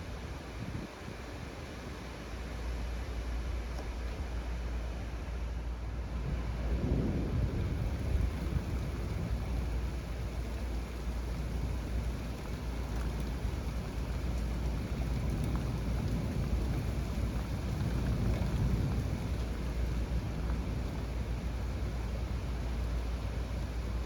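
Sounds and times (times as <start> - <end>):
heavy rain pouring: 4.5 - 24.0
deep thunder rumble: 6.2 - 24.0.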